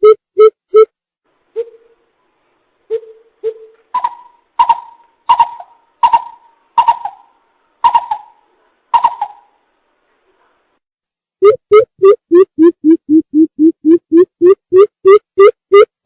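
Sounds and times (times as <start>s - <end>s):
coucal hooting call: 2.9s - 9.6s.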